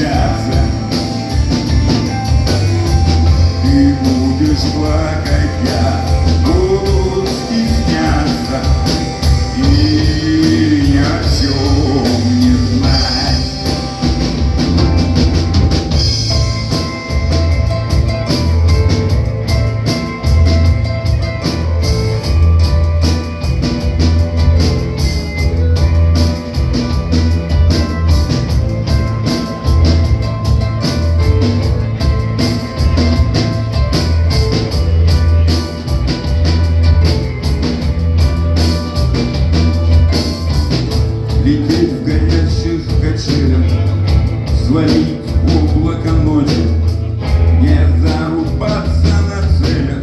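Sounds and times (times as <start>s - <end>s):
bass guitar notes: 0.0s - 50.0s
drum beat: 0.0s - 50.0s
rock band playing: 0.0s - 50.0s.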